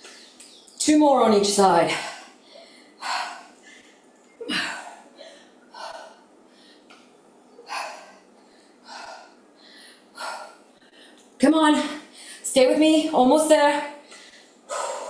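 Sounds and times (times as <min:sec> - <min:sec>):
woman exhaling forcefully: 0:14.7 - 0:15.0.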